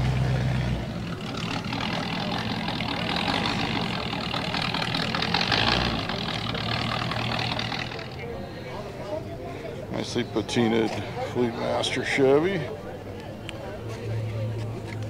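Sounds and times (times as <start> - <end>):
vehicle engine running: 0.0 - 8.9.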